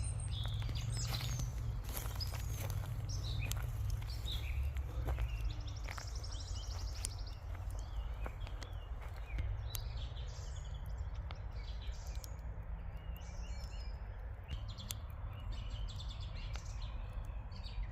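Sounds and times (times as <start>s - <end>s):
small birds chirping and trilling: 0.0s - 17.9s
steady low rumble: 0.0s - 17.9s
sharp clicks: 6.9s - 17.4s.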